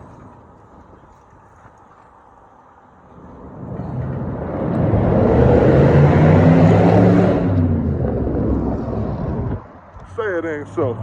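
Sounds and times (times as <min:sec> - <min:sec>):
vehicle engine accelerating: 0:03.0 - 0:09.7.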